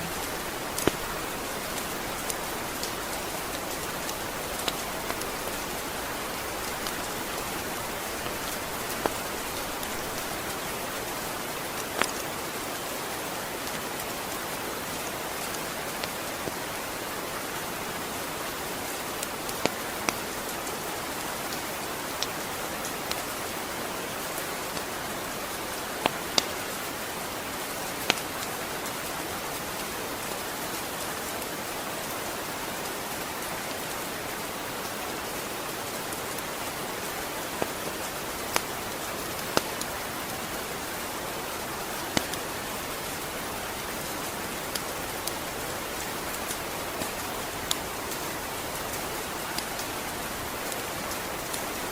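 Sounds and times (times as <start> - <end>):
steady rain hiss: 0.0 - 51.9.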